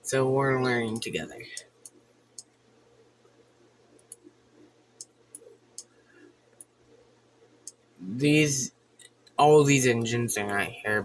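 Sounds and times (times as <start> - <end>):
low electrical hum: 0.0 - 11.0
computer mouse clicks: 0.9 - 2.6, 3.9 - 6.0, 6.6 - 6.8, 7.6 - 7.8.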